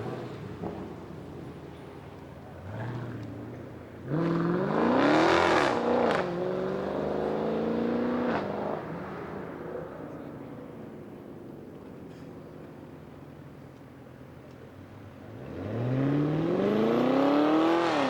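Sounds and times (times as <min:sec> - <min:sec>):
car engine accelerating hard: 0:00.0 - 0:10.5, 0:15.2 - 0:18.0.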